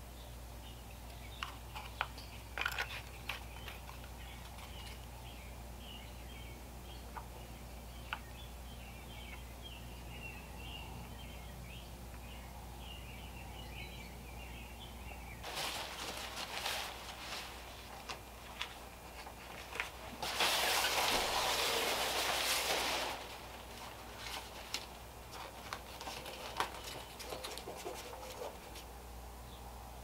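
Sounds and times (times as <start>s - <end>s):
low steady hum: 0.0s - 30.0s
rustling: 15.4s - 28.9s.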